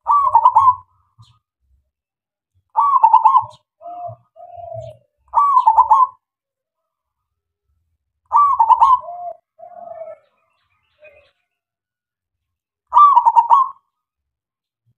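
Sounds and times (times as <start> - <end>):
dove cooing: 0.0 - 1.4, 2.7 - 6.2, 8.3 - 11.4, 12.9 - 13.9.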